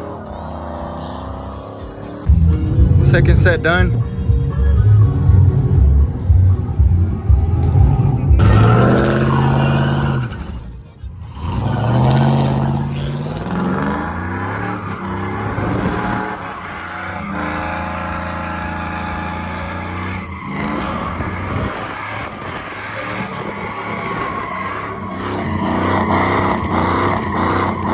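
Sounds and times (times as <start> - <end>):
truck engine revving: 0.0 - 27.9
spinning tires squealing: 6.1 - 27.9.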